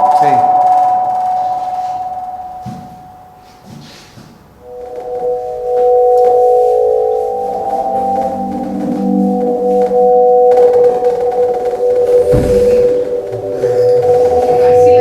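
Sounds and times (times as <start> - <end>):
synthesized organ-like chord: 4.4 - 15.0.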